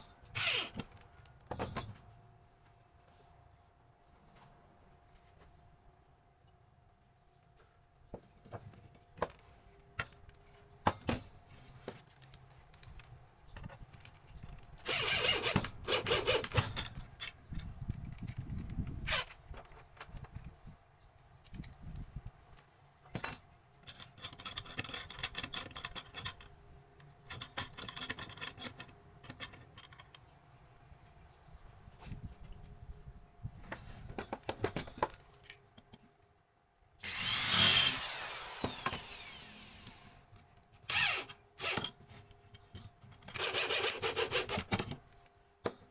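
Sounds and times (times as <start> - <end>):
tool parts clicking and knocking: 11.9 - 20.6, 23.1 - 30.3, 40.9 - 45.0.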